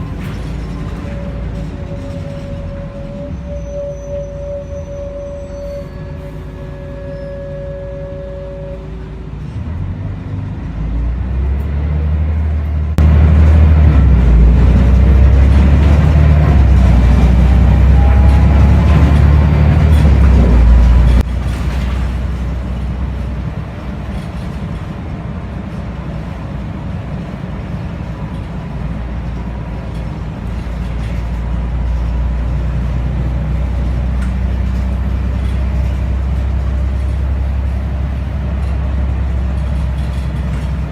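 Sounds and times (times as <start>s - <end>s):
bus diesel engine accelerating: 0.0s - 40.9s.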